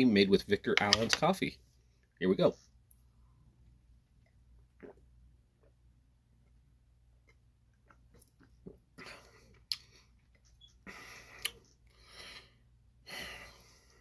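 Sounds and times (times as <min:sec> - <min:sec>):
man gulping a drink: 0:04.2 - 0:05.9, 0:07.2 - 0:11.9.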